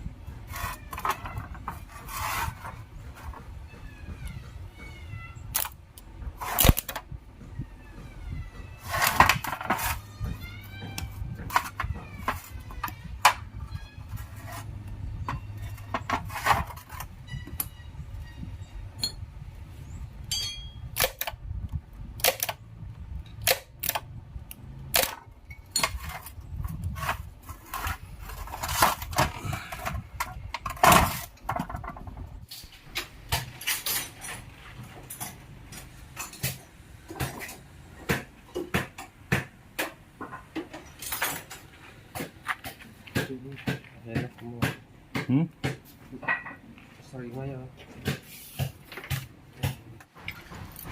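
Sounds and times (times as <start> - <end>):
metal tools clinking: 15.2 - 19.3, 20.2 - 20.9, 32.5 - 36.6, 40.7 - 41.8.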